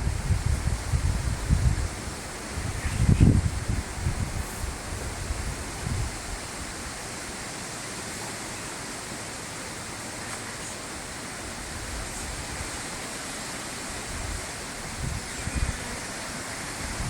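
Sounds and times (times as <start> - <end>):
wind buffeting microphone: 0.0 - 7.0, 13.9 - 16.0, 16.7 - 17.0
rushing hiss of background noise: 0.0 - 17.0.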